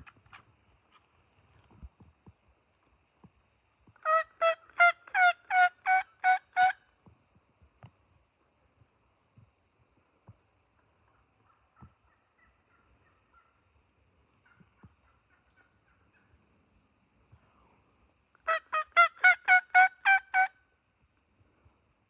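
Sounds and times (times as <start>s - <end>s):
faint soft turkey calls: 3.9s - 7.2s, 10.2s - 21.9s
turkey yelps: 4.0s - 6.8s, 11.1s - 13.6s, 14.4s - 16.4s, 18.4s - 20.6s.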